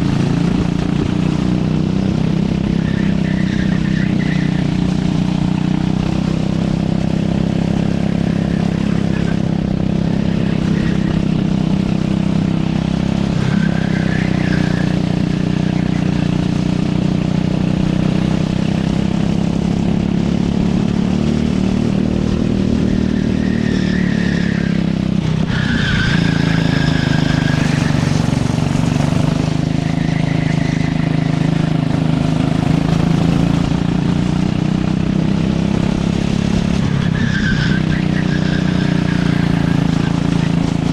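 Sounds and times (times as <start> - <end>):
race kart engine: 0.0 - 40.9
tyre squeals: 2.6 - 5.2, 8.2 - 16.3, 22.6 - 34.3, 36.7 - 40.9.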